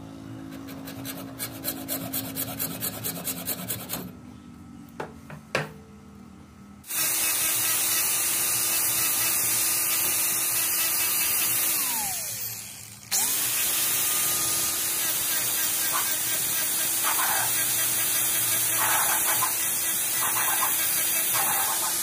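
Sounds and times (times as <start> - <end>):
power tool motor hissing: 6.9 - 22.0.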